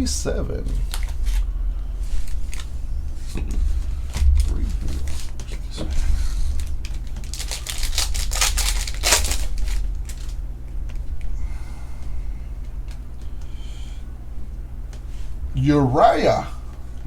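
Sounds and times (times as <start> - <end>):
steady low hum: 0.0 - 17.0
wrapper crinkling: 6.6 - 11.1.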